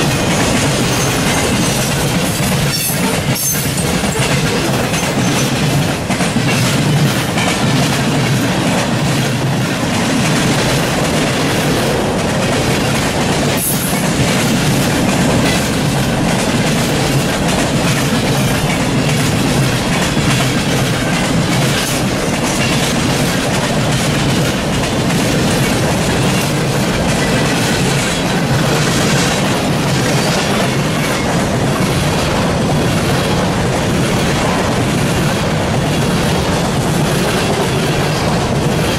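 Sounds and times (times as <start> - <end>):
steel wheels rumbling on rail: 0.0 - 38.9
wheels clacking over rail joints: 0.0 - 38.9.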